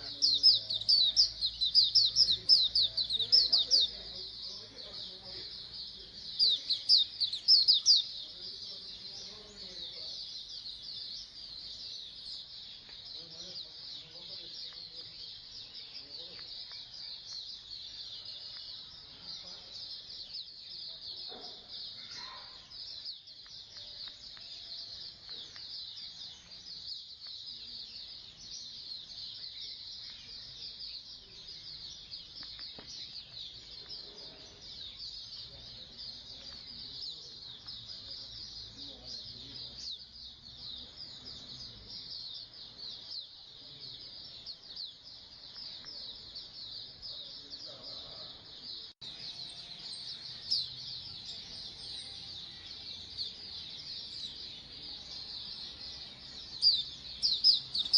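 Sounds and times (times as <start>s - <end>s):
birds chirping and twittering: 0.0s - 57.9s.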